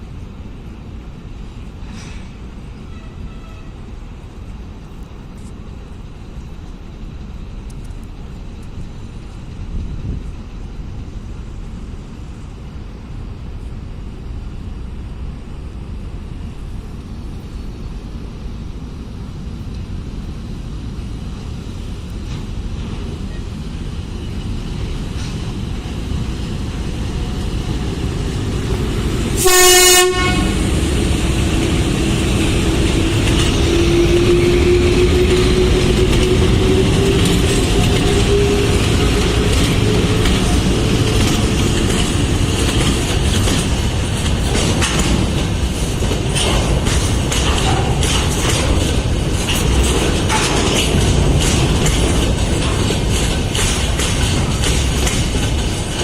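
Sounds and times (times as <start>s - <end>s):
freight train rumble and wheel noise: 0.0s - 56.0s
locomotive horn blast: 2.8s - 3.8s, 29.4s - 30.7s.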